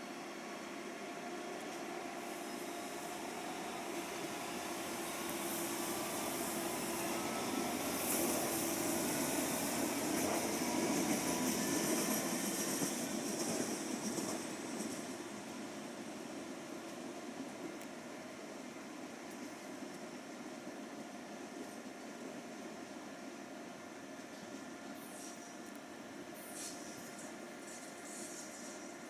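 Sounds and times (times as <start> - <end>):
train rolling on tracks: 0.0 - 29.0
hiss: 2.2 - 15.0, 25.0 - 25.5, 26.4 - 29.0.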